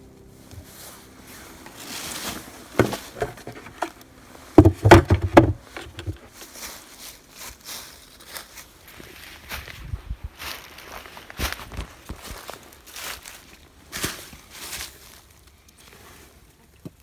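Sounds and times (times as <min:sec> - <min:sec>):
knocks and thumps: 0:02.8 - 0:04.0, 0:04.6 - 0:06.2.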